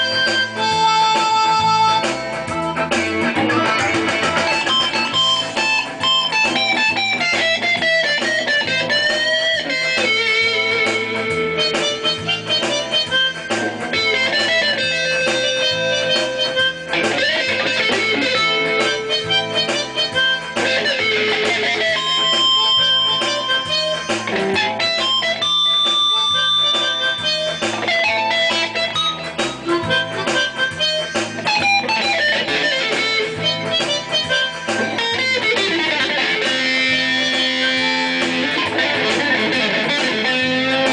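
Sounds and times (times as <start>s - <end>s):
electric guitar lead playing: 0.0s - 40.9s
steady accompaniment: 0.0s - 40.9s.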